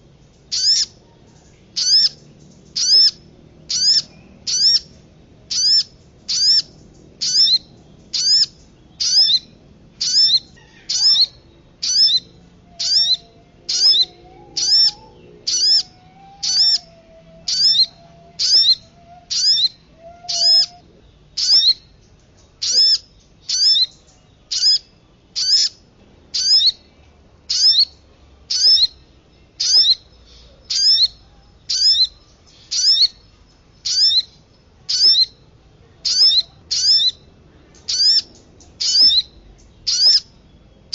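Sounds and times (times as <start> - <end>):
high bird chirp: 0.2 - 26.9, 27.5 - 40.9
lower wavering bird whistle: 1.8 - 21.9, 29.6 - 33.2, 33.8 - 35.4, 37.9 - 40.3.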